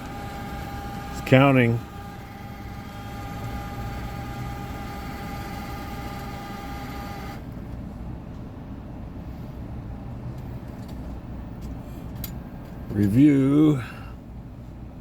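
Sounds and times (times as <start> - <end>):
cash machine whirring: 0.0 - 7.5
idling vehicle rumble: 0.0 - 15.0.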